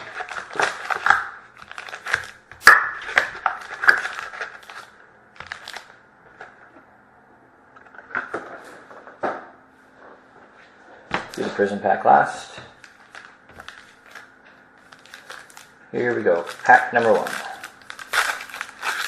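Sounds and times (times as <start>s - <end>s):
card pack wrappers crinkling: 0.0s - 6.0s, 12.8s - 19.0s.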